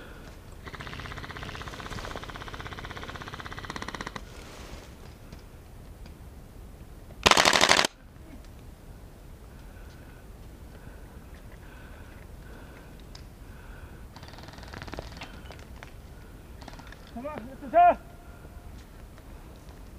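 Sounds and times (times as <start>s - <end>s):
airsoft guns firing full auto: 0.6s - 4.2s, 7.2s - 8.0s, 14.2s - 15.4s, 16.6s - 17.2s.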